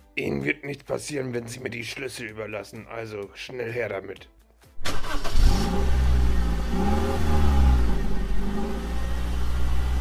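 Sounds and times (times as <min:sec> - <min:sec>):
van engine driving off: 0:04.8 - 0:10.0.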